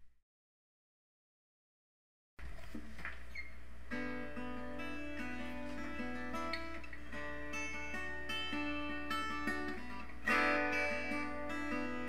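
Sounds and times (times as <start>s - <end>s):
acoustic guitar picking notes: 3.9s - 12.0s.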